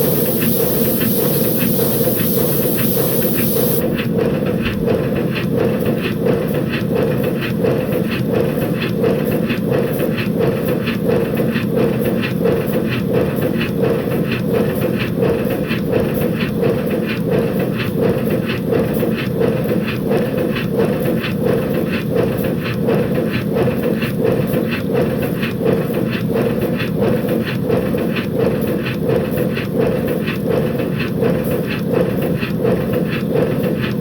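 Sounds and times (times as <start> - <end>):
steady hiss: 0.0 - 3.8
steam locomotive exhaust beats: 0.0 - 34.0.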